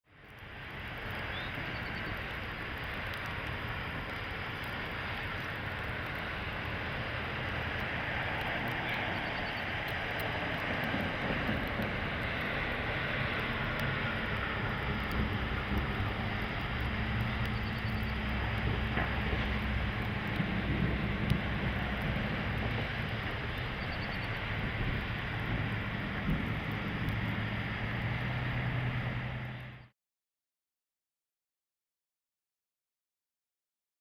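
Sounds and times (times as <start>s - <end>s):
vehicle road and engine noise: 0.1s - 29.9s
low hum: 5.8s - 29.9s.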